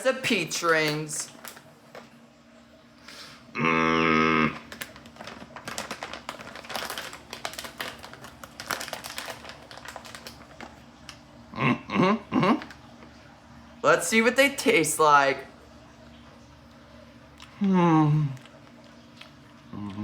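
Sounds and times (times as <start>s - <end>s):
plastic packaging crinkling: 0.3s - 2.2s, 4.5s - 11.3s, 12.6s - 13.2s.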